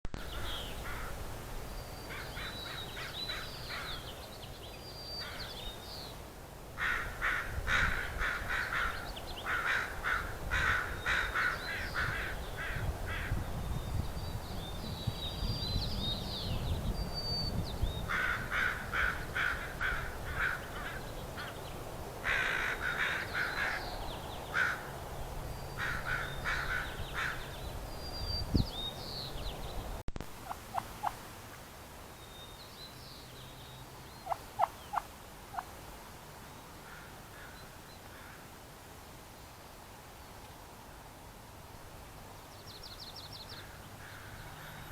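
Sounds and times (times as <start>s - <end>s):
birds harsh calls: 1.8s - 4.3s, 5.1s - 6.1s, 6.8s - 13.5s, 18.0s - 25.0s, 25.7s - 29.8s.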